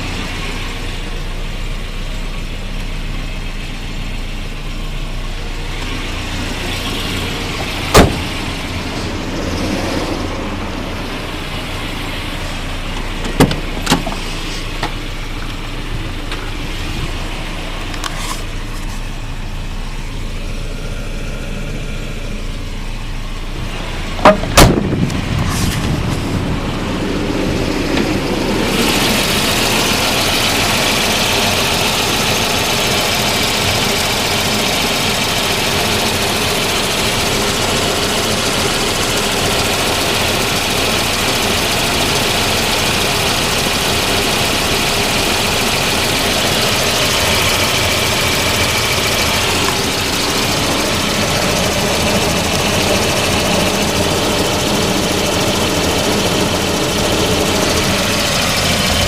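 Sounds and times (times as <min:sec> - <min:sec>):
car engine idling: 0:00.0 - 0:59.0
engine hiss: 0:00.0 - 0:59.0
loud knocks: 0:07.9 - 0:08.4, 0:24.2 - 0:25.0.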